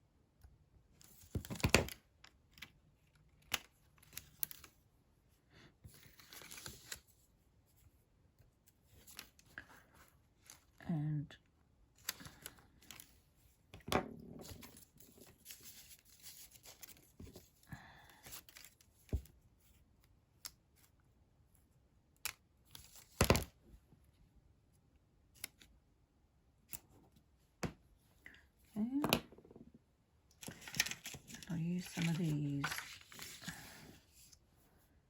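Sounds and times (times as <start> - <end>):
paper rustling and peeling: 30.4 - 34.4.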